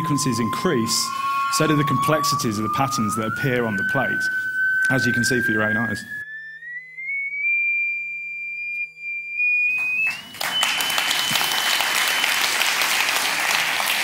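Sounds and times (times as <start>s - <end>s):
pure tone rising in pitch: 0.0s - 12.2s
audience applause: 9.8s - 14.0s.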